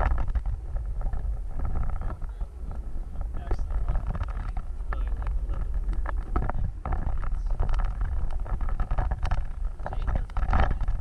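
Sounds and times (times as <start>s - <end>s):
knocks and rattles: 0.0s - 11.0s
off-road vehicle rumbling: 0.0s - 11.0s.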